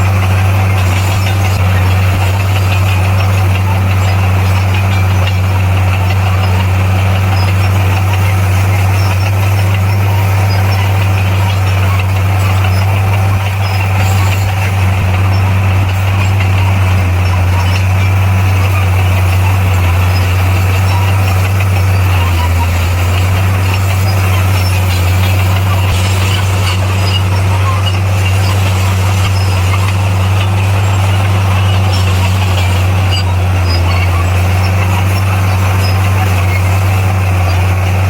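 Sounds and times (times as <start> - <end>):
heavy diesel engine droning: 0.0 - 38.0.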